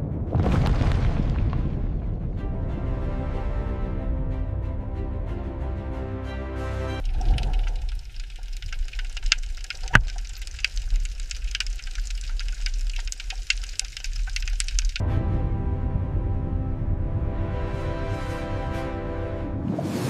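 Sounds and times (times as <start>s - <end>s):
deep low rumble: 0.0s - 4.8s, 7.0s - 19.8s
dense crackling and popping clicks: 7.0s - 15.0s
sharp crack: 7.0s - 15.0s.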